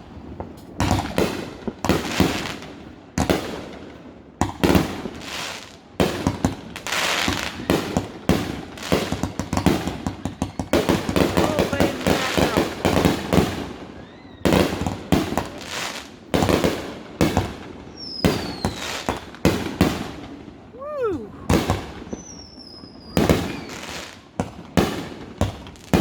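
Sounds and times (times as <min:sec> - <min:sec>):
fireworks banging: 0:00.0 - 0:13.9, 0:14.5 - 0:26.0
firework whistles: 0:10.0 - 0:15.0, 0:17.9 - 0:19.3, 0:20.8 - 0:24.3.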